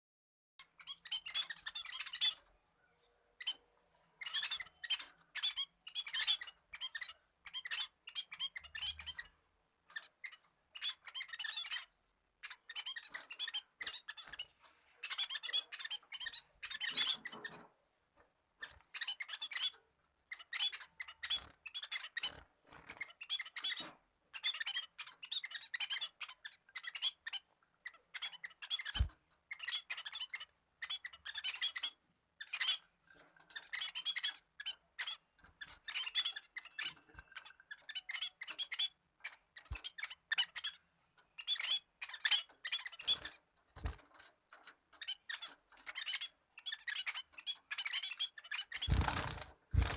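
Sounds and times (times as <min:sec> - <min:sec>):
bird chirping and chattering: 0:00.6 - 0:17.9, 0:18.5 - 0:49.9.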